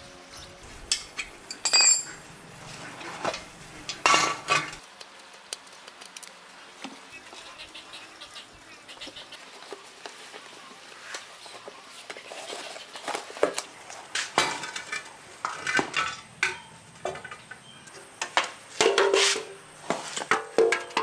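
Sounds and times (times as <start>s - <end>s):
metal tools clinking: 0.9s - 2.1s.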